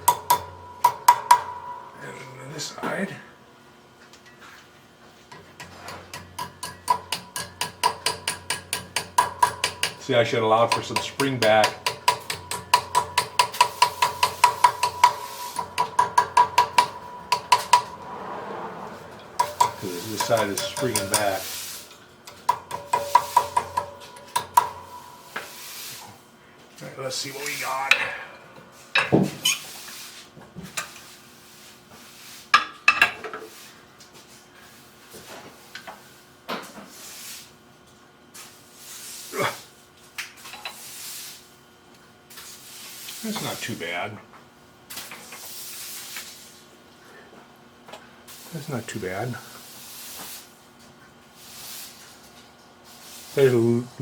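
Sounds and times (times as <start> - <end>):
small hammer tapping sheet metal: 0.0 - 2.2, 5.3 - 18.1, 19.2 - 26.1
metal tools clanking: 0.0 - 3.2, 5.3 - 26.1.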